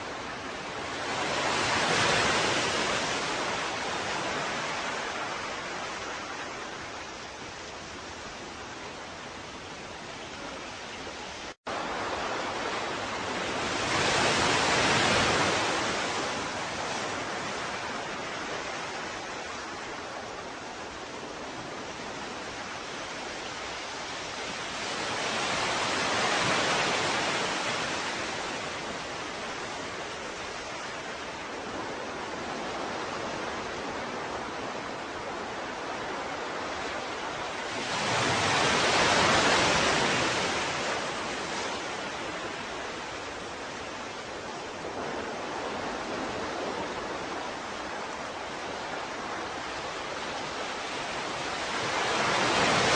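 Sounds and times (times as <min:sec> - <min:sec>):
ocean waves washing ashore: 0:00.0 - 0:52.9.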